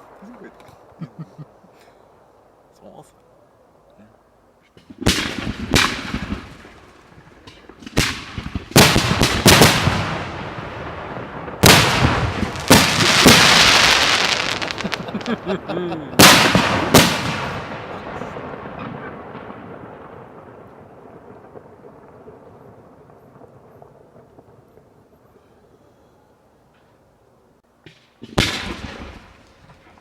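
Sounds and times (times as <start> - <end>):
crackling hiss: 0.0 - 30.0
fireworks bangs: 4.8 - 25.4, 27.8 - 30.0.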